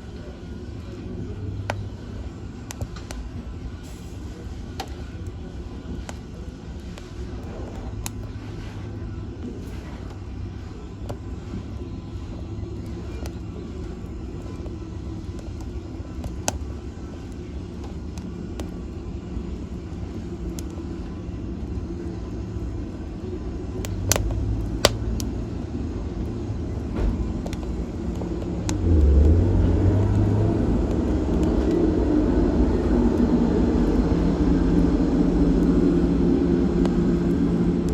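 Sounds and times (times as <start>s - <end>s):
fire crackling and popping: 0.0s - 37.9s
fire roaring: 0.0s - 37.9s.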